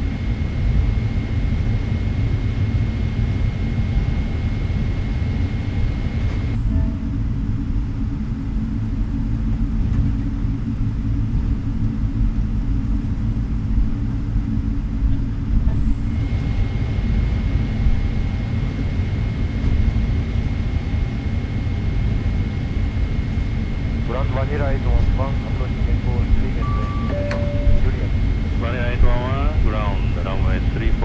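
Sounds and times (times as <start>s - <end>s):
airplane cabin rumble: 0.0s - 31.0s
radio hiss with high tone: 1.2s - 6.6s, 16.1s - 31.0s.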